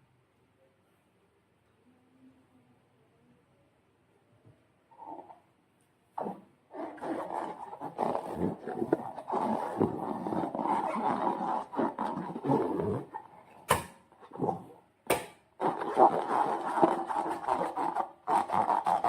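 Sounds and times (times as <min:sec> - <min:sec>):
slime being squeezed by hand: 0:06.2 - 0:19.0.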